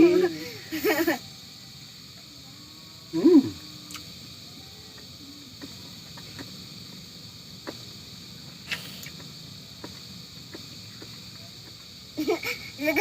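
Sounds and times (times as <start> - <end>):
insects chirring: 0.0 - 13.0
faint irregular clicks: 7.6 - 7.9, 8.7 - 12.5.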